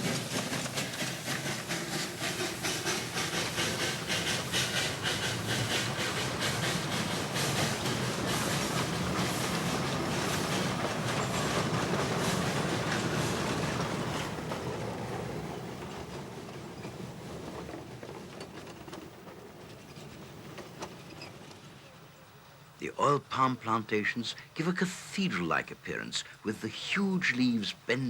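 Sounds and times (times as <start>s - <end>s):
steam hiss: 0.0s - 14.5s
steam locomotive exhaust beats: 0.0s - 21.0s.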